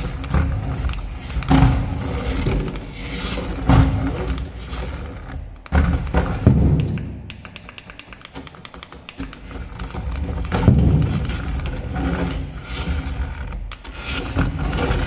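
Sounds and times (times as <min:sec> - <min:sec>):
fast clicking: 0:04.0 - 0:15.0.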